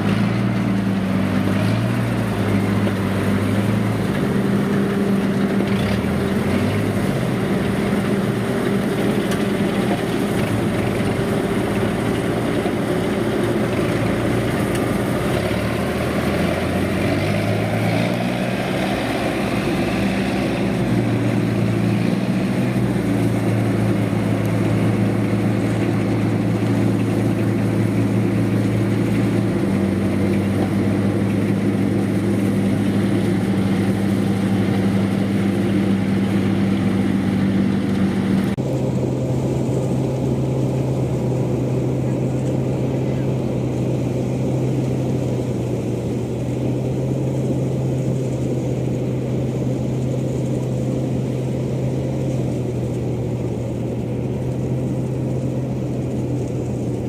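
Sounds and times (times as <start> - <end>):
harvester engine running under load: 0.0 - 57.0.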